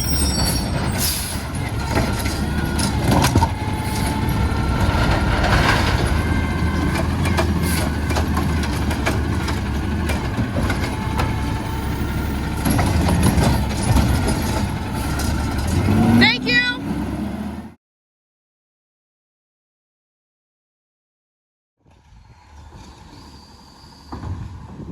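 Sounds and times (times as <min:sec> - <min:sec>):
garbage truck engine running: 0:00.0 - 0:17.8.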